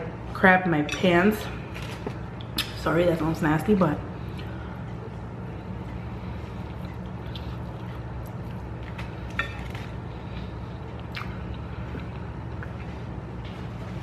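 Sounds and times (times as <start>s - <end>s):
steady low hum: 0.0s - 14.0s
person chewing: 5.9s - 13.1s
mouth clicks and smacks: 11.0s - 12.8s.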